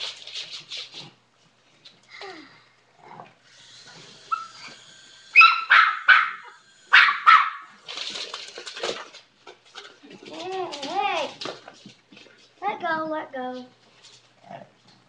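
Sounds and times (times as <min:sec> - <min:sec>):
dog barking: 0:05.4 - 0:07.7.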